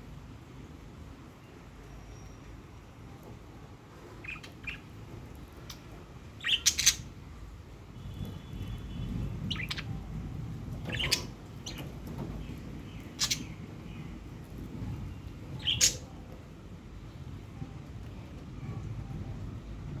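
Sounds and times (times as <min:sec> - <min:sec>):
budgerigar chirping and squawking: 0:04.2 - 0:04.9, 0:06.4 - 0:07.1, 0:09.5 - 0:09.9, 0:10.8 - 0:11.9, 0:13.2 - 0:13.5, 0:15.6 - 0:16.1.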